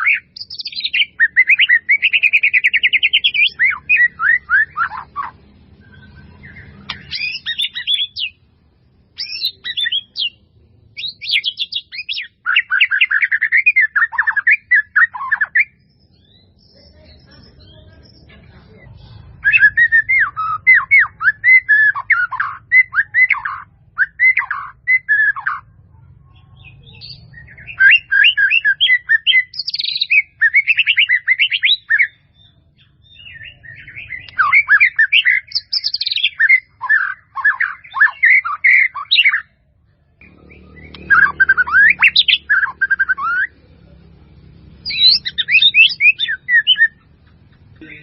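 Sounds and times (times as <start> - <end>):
songbird singing whistled phrases: 0.0 - 8.4, 9.2 - 10.4, 11.0 - 18.2, 19.4 - 25.7, 26.6 - 39.6, 40.2 - 43.6, 44.8 - 47.1.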